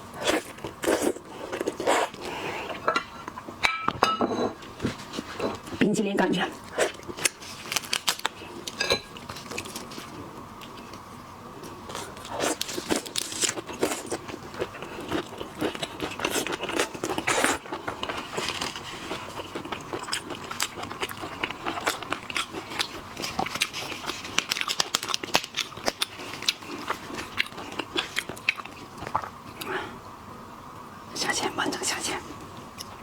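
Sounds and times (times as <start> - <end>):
shrimp shells cracking and crunching: 23.6 - 27.9.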